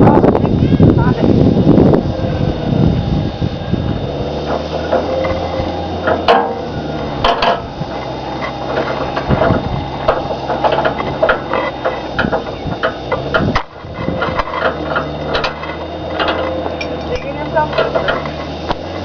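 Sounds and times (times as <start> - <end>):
vehicle engine idling: 0.0 - 19.0
scattered clicks and knocks: 6.0 - 19.0.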